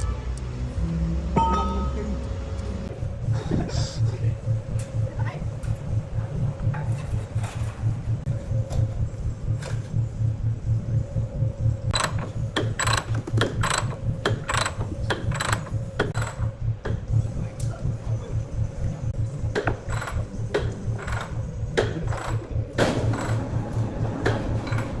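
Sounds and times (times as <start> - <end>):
sharp metallic clicks and knocks: 11.9 - 17.8, 19.2 - 25.0.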